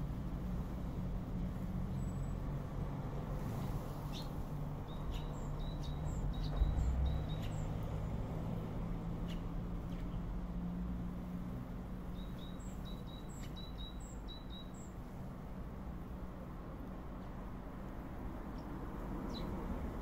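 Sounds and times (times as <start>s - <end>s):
low outdoor rumble: 0.0s - 5.2s
small birds chirping: 3.6s - 8.0s, 9.1s - 10.2s, 12.0s - 15.1s, 18.4s - 19.7s.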